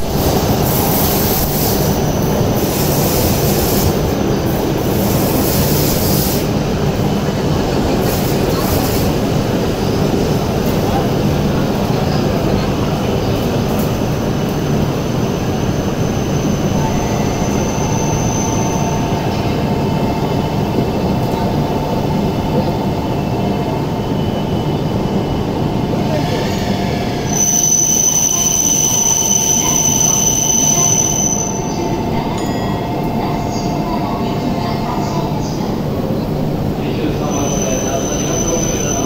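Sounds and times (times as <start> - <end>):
train wheels rumbling on rail: 0.0 - 39.0
high wheel squeal: 15.4 - 19.5, 26.3 - 32.0, 37.2 - 39.0.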